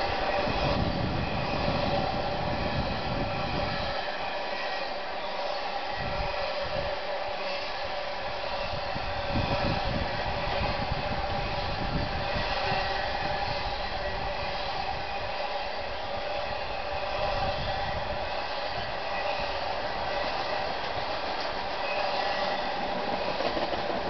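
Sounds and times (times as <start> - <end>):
constant humming tone: 0.0 - 24.0
wheels rumbling on track: 16.6 - 24.0.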